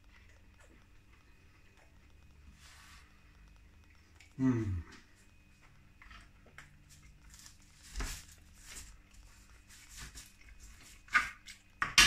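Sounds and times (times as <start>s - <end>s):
wet chewing clicks and smacks: 0.0s - 2.5s.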